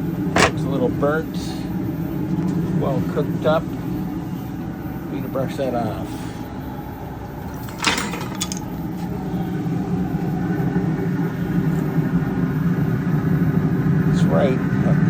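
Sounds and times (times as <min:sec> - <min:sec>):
low mechanical hum: 0:00.0 - 0:15.0
sharp knocks or scrapes: 0:00.4 - 0:00.6.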